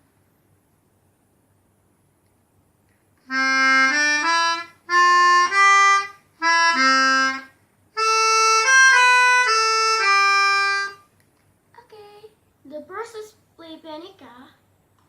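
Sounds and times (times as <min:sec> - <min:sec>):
melodica playing a simple tune: 0:03.2 - 0:11.1.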